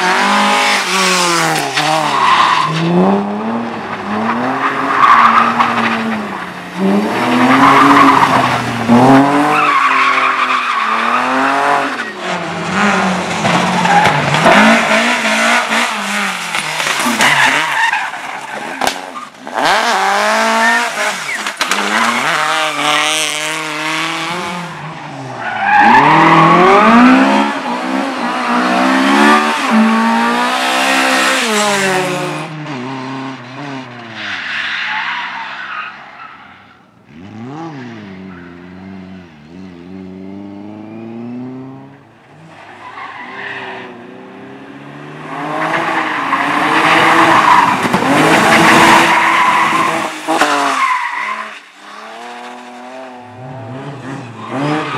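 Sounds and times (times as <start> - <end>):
race car engine revving: 0.0 - 18.0, 18.8 - 33.9.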